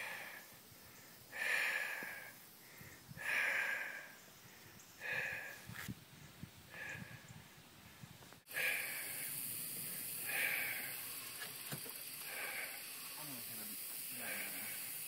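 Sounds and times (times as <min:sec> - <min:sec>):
steady hiss: 0:07.6 - 0:15.0.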